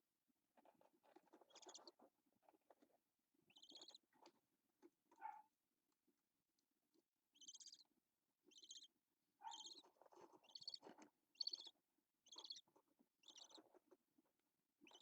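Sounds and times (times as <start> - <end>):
budgerigar chirping: 1.5 - 1.9, 3.5 - 4.0, 7.4 - 7.9, 8.5 - 13.8.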